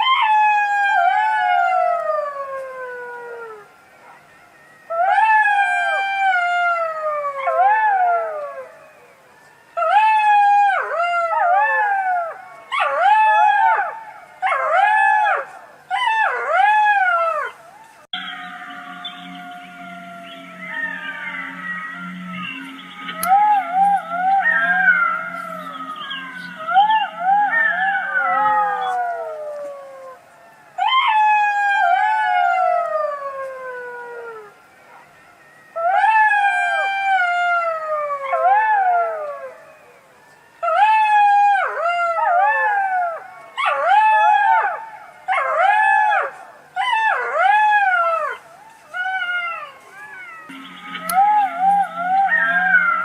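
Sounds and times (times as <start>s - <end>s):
fox calling: 9.8s - 30.2s, 40.6s - 53.0s.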